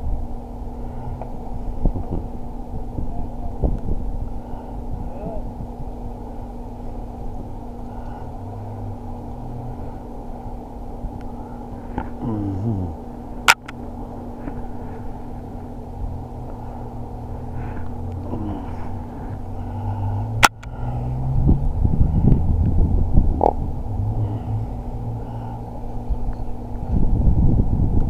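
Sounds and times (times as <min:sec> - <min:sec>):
vehicle engines humming: 0:00.0 - 0:28.0
vehicle driving off: 0:03.9 - 0:28.0
sharp clicks: 0:13.5 - 0:13.8.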